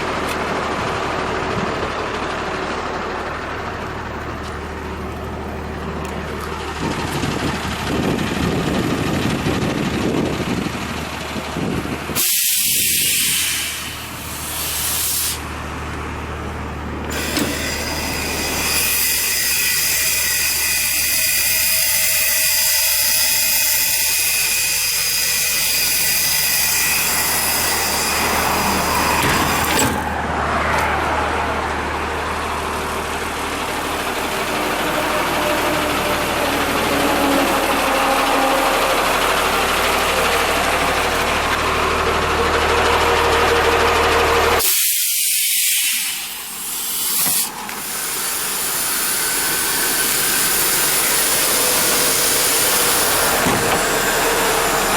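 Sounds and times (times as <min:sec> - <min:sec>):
diesel engine running: 0:00.0 - 0:54.9
strong hiss: 0:12.1 - 0:15.5, 0:44.6 - 0:53.9.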